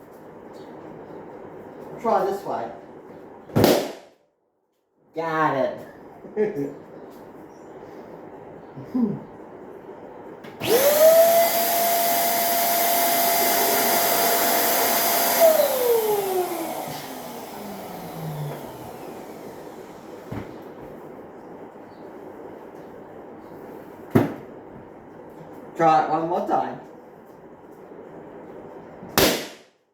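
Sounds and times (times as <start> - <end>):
balloon inflator motor whining: 10.6 - 20.3.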